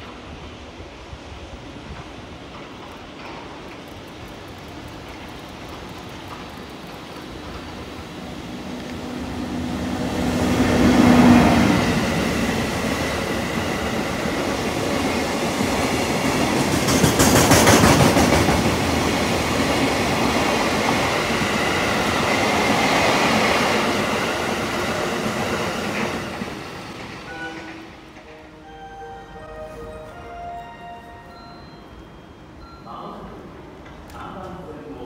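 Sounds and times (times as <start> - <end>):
electric locomotive humming: 0.0 - 34.1
wheels clacking over rail joints: 16.4 - 19.3.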